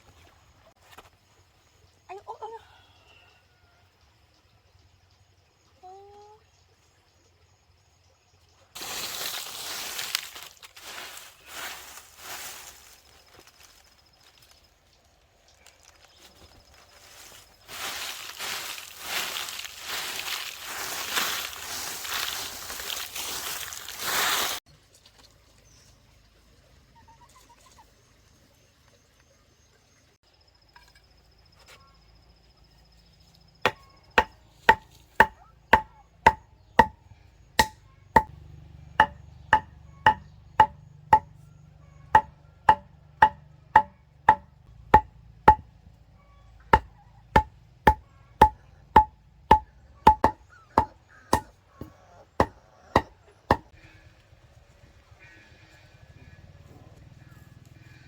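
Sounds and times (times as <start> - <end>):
rustling noise: 8.8 - 14.5, 15.6 - 25.1
blade chopping wood: 33.7 - 37.0, 37.6 - 38.3, 39.0 - 41.3, 42.2 - 45.6, 46.8 - 51.5.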